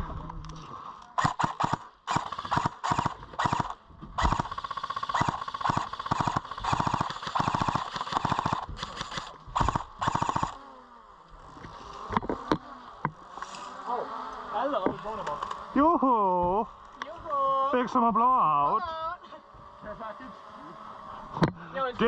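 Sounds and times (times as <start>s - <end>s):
airsoft gun firing bursts: 1.2s - 10.6s.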